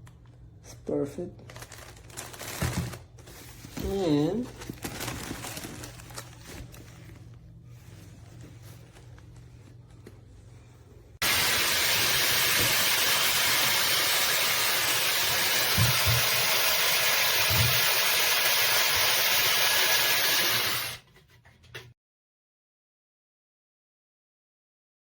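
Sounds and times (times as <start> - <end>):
hot air brush blowing: 11.2 - 21.0.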